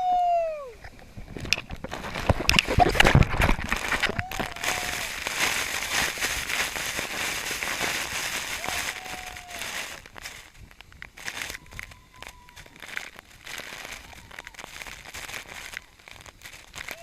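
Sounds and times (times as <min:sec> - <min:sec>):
knocks and crackles: 0:00.8 - 0:17.0
rushing splashing water: 0:01.9 - 0:10.6.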